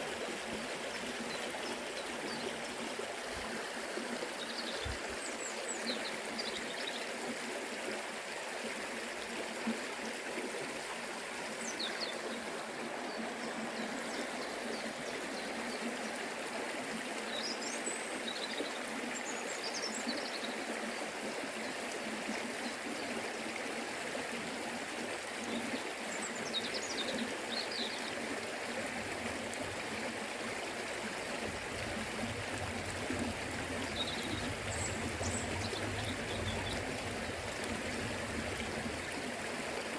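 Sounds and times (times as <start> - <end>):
river rushing over stones: 20.6 - 39.9.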